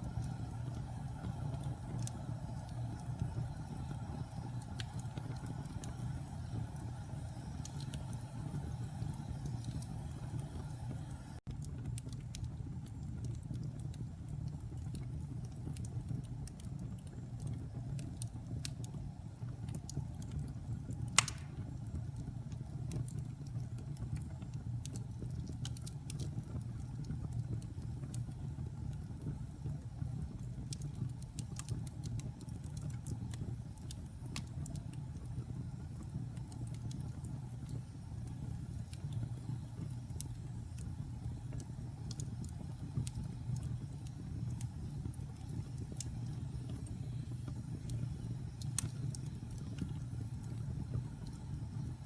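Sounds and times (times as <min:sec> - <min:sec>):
wood fire crackling: 0:00.0 - 0:52.0
sharp fire pop: 0:21.2 - 0:21.8.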